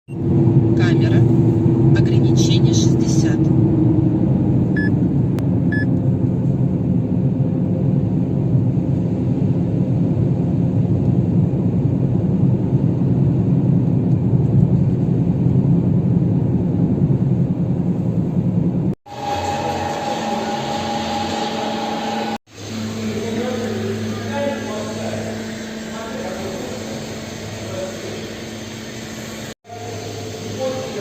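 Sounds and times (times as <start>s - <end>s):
short electronic beeps: 4.8s - 5.0s
wheel bearing drone: 15.6s - 31.0s.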